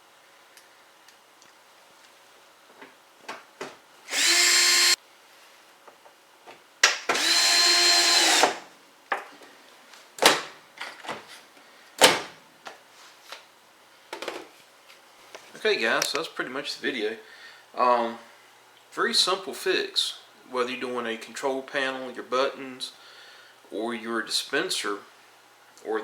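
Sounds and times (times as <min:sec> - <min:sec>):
cordless driver driving screws: 0:04.1 - 0:05.0, 0:07.1 - 0:08.6.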